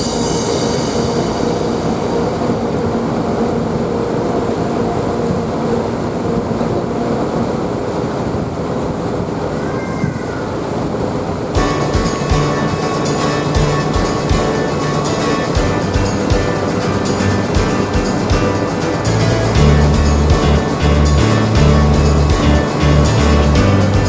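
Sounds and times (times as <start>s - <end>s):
ferry engine drone: 0.0s - 9.6s, 10.6s - 24.0s
wind: 0.0s - 11.8s
water rushing: 10.4s - 24.0s.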